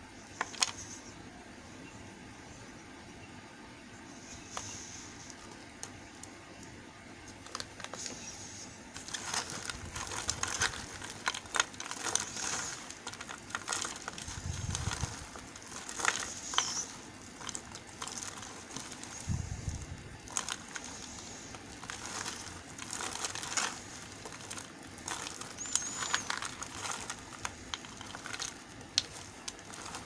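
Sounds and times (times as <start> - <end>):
soap bars clicking and scraping: 9.0 - 19.4, 20.2 - 30.0.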